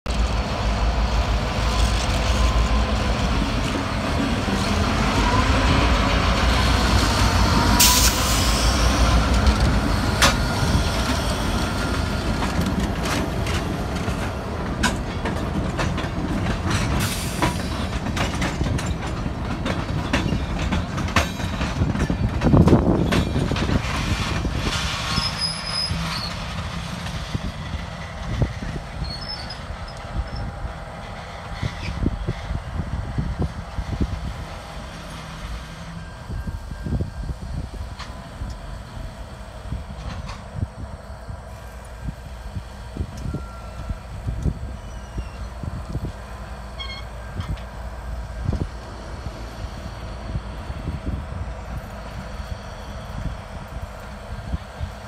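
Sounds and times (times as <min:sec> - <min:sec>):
diesel locomotive engines rumbling: 0:00.1 - 0:55.0
train wheels clicking over rail joints: 0:01.1 - 0:55.0
wheels squealing: 0:25.0 - 0:26.5, 0:28.7 - 0:30.5.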